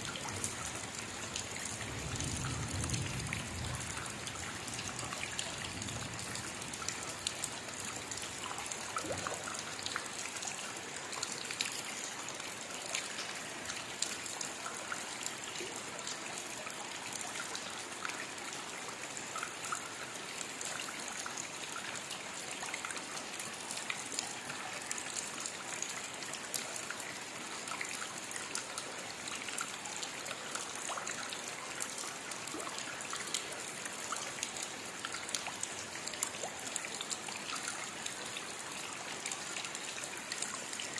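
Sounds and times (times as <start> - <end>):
steady rain hiss: 0.0 - 27.6.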